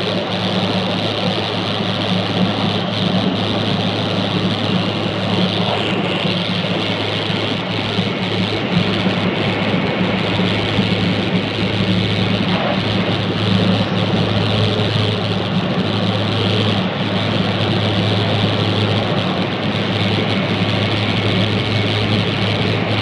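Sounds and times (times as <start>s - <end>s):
low hum: 0.0s - 23.0s
train rushing noise: 0.0s - 23.0s.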